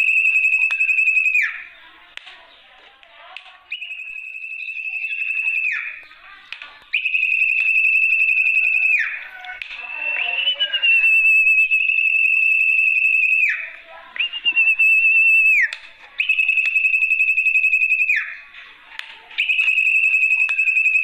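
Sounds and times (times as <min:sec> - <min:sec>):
bird call whistled notes: 0:03.7 - 0:06.1, 0:06.9 - 0:18.4.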